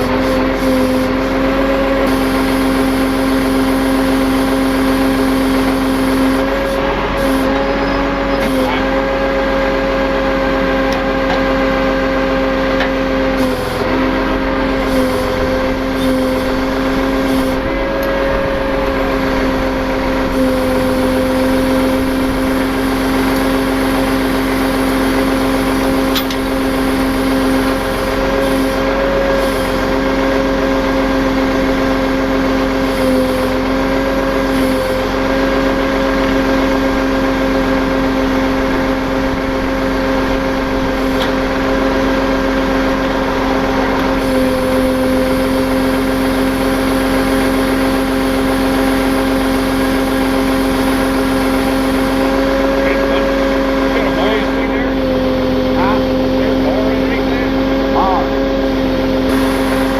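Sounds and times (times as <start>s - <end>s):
high whine: 0.0s - 59.9s
tow truck winching: 0.0s - 59.9s.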